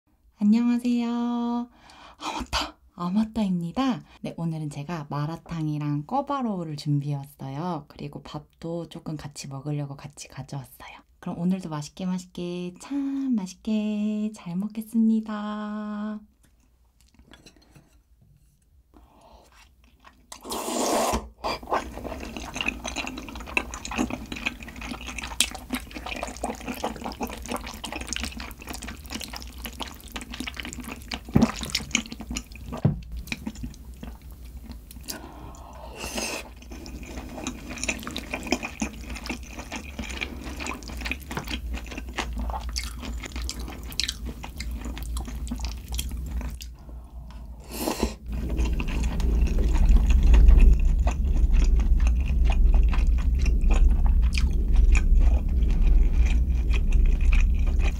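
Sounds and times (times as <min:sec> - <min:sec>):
chewing: 0:19.5 - 0:20.5, 0:21.6 - 0:47.4, 0:48.0 - 0:57.9
slurping noodles: 0:19.5 - 0:32.7, 0:47.4 - 0:57.9.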